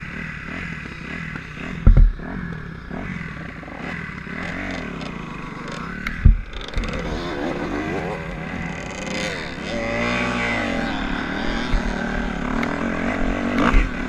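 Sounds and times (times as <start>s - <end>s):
dirt bike engine revving: 0.0s - 14.0s
heavy thumps: 1.8s - 2.4s, 6.0s - 7.1s.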